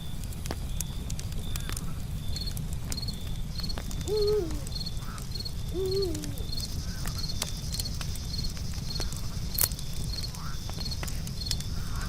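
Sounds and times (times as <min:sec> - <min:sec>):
campfire crackling: 0:00.0 - 0:12.0
crickets chirping: 0:02.3 - 0:12.0
low animal hooting calls: 0:04.0 - 0:06.7.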